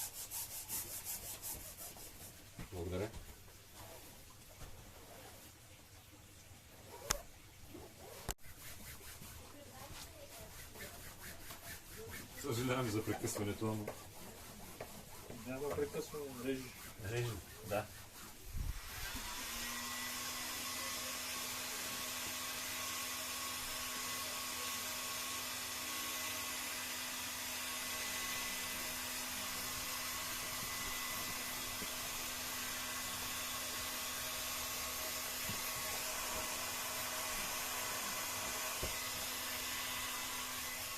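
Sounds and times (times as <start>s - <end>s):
heat gun blowing: 18.6s - 40.9s.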